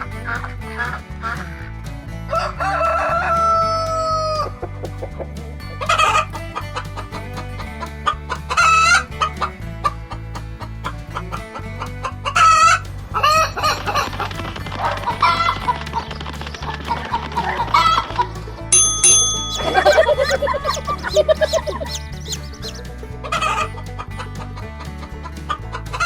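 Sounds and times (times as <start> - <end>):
background music with steady beat: 0.0 - 26.0
rooster crowing: 2.3 - 4.5.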